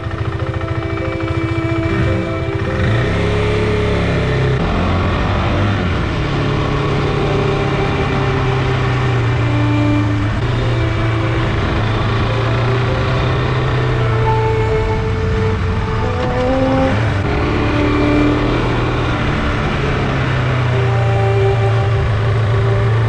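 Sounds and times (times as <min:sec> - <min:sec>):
motorcycle engine cruising: 0:00.0 - 0:23.0
wind and road rush: 0:00.0 - 0:23.0.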